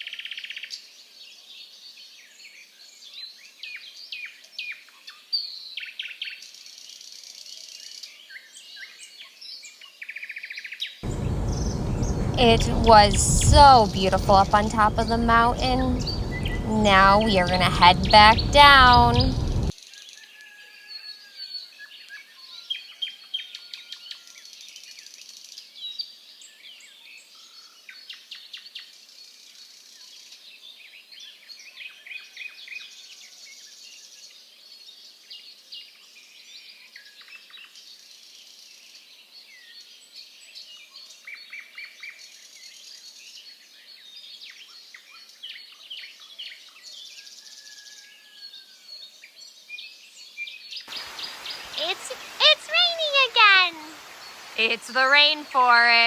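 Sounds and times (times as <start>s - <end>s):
birds chirping and trilling: 11.0s - 13.0s, 16.0s - 16.6s, 50.9s - 52.4s, 53.9s - 55.8s.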